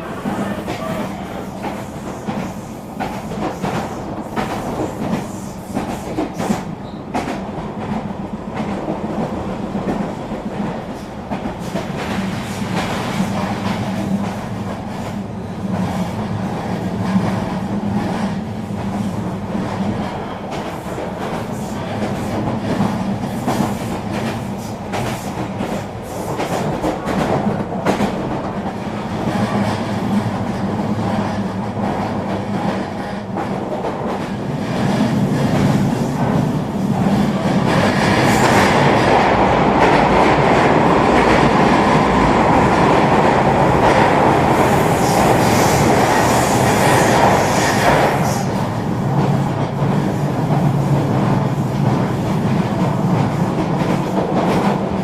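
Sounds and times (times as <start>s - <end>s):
train rolling rumble: 0.0s - 55.0s.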